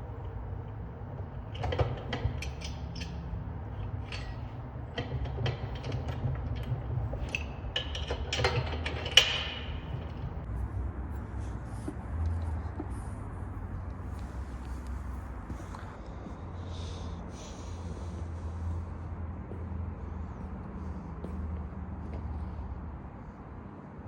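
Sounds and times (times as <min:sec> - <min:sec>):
knocks clicks and clatter: 0:00.0 - 0:10.5.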